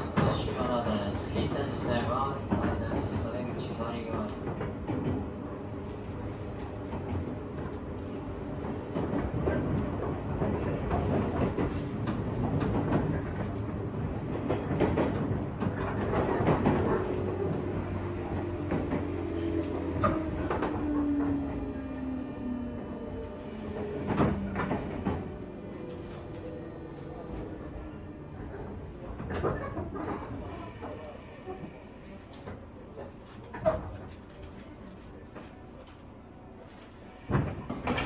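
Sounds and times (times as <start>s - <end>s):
train wheels clattering on rails: 8.6s - 21.5s.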